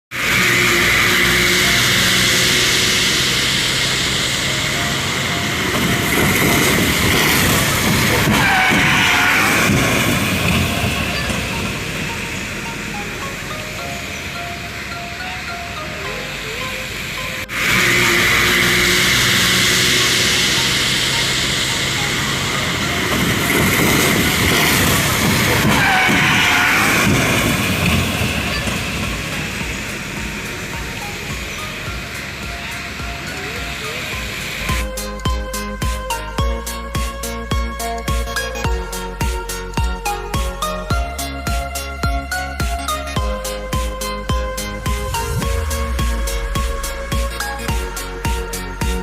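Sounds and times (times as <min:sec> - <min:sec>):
car engine hum: 0:00.0 - 0:49.0
tyres hissing on wet road: 0:00.1 - 0:38.6
low uneven traffic rumble: 0:00.2 - 0:49.0.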